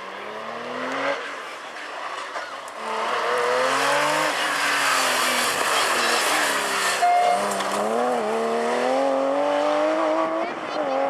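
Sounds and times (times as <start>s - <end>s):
rally car engine revving high: 0.0s - 11.0s
tyre road noise hiss: 3.9s - 8.0s.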